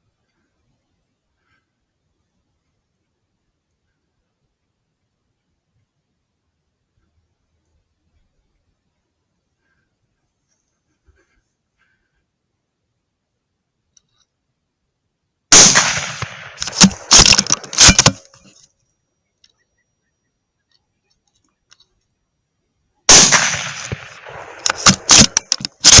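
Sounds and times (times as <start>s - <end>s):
gunshots: 15.5s - 18.3s, 23.1s - 26.0s
metallic clicks and clanks: 16.2s - 18.5s, 23.6s - 26.0s.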